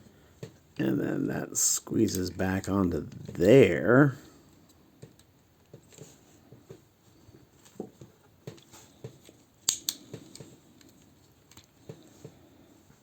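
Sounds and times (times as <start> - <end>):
sharp plastic snaps: 8.5 - 11.8
plastic toy parts clicking: 8.6 - 11.7.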